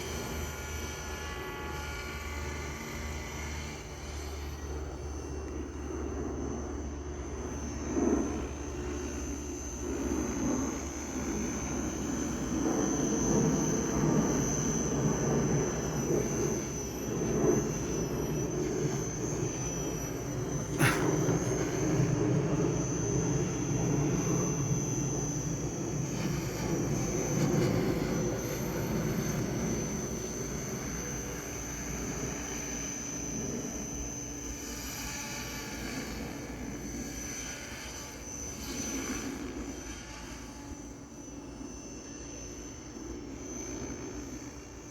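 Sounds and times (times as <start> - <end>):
model helicopter high whine: 0.0 - 44.9
fluttering rotor: 7.6 - 42.4.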